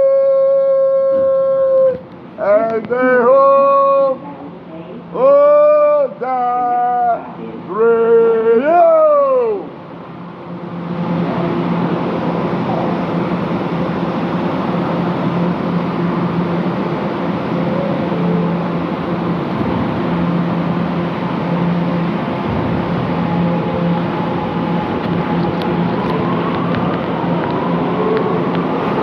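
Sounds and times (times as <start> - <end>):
train rumbling: 0.0 - 29.0
faint humming tone: 6.7 - 29.0.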